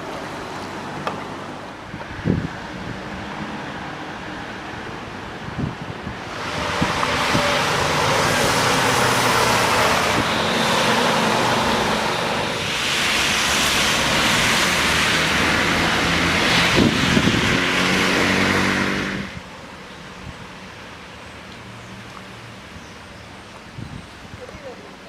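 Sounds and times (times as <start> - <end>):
engine hum: 0.0 - 19.6
tyres splashing through water: 6.2 - 19.4.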